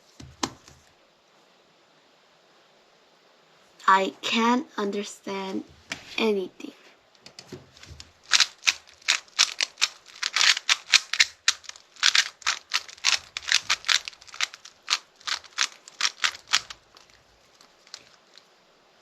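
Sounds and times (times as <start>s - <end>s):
speed cube clicking: 7.8s - 18.4s.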